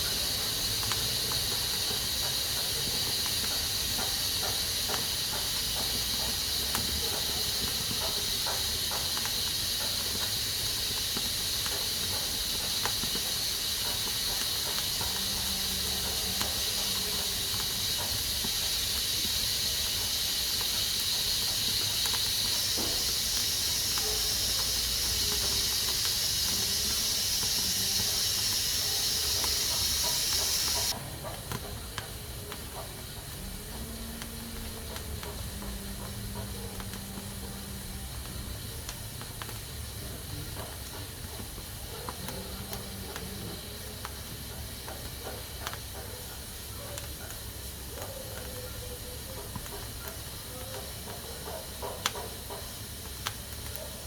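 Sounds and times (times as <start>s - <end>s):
pressure cooker steam hissing: 0.0s - 54.0s.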